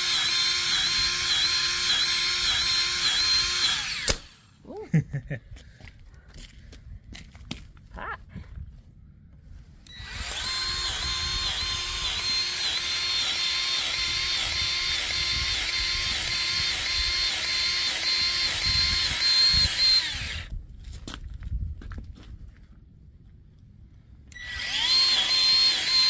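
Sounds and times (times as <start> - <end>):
grease gun motor whining: 0.0 - 4.5, 9.8 - 20.5, 24.3 - 26.0.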